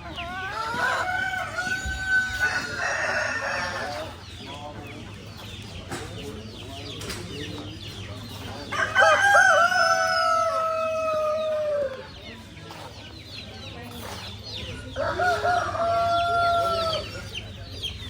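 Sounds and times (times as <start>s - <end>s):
chickens calling: 0.0s - 18.0s
rooster crowing: 8.7s - 11.8s.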